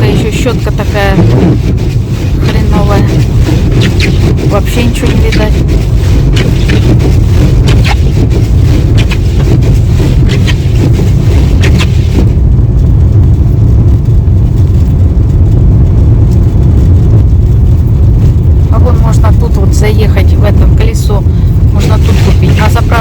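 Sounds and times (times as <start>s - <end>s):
car cabin driving rumble: 0.0s - 23.0s.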